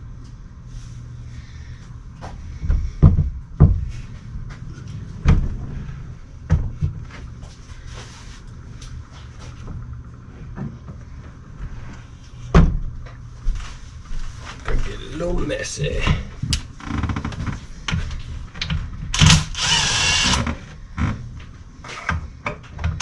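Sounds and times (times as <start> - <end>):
low steady hum: 0.0 - 23.0
heavy thuds and knocks: 2.6 - 4.0.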